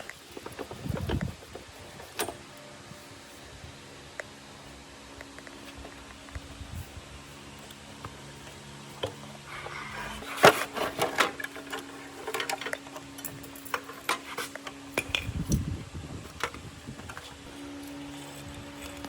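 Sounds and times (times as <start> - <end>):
tools and metal parts clinking: 0.0 - 2.6, 9.8 - 15.7
faint steady hum: 0.0 - 19.0.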